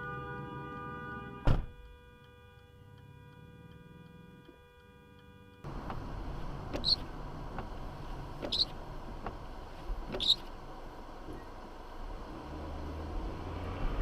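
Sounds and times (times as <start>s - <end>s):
road noise: 0.0s - 14.0s
short high squeaks: 6.7s - 7.1s, 8.4s - 8.8s, 10.1s - 10.5s.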